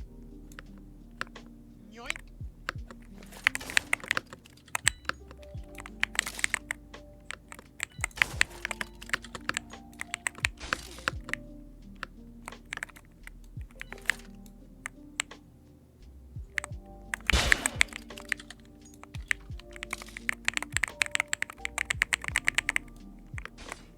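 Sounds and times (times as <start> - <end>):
background music: 0.0 - 23.9
keyboard key clicks: 7.3 - 11.4, 12.5 - 13.0, 16.6 - 23.9.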